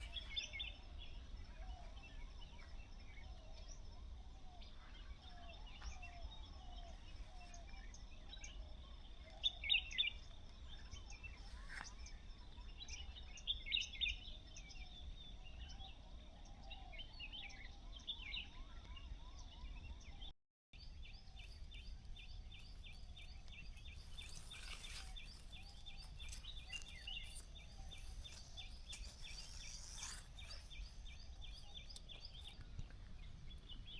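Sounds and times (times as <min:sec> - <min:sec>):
birds chirping and calling: 0:21.4 - 0:33.9.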